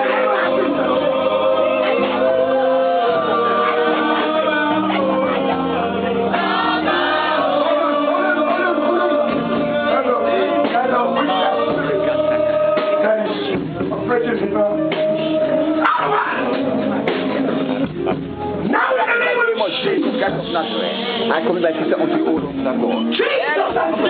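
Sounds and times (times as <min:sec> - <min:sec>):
congregation singing: 0:00.0 - 0:17.1
keyboard and bass: 0:00.0 - 0:24.0.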